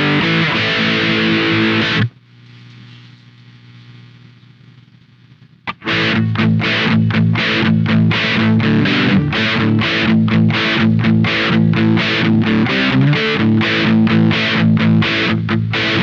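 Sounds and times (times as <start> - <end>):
distorted electric guitar riff: 0.0 - 2.2, 5.6 - 16.0.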